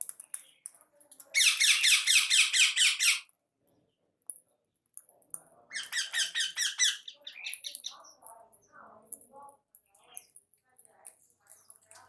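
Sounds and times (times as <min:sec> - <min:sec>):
pet bird squeaky calls: 0:01.4 - 0:03.3, 0:05.7 - 0:07.9.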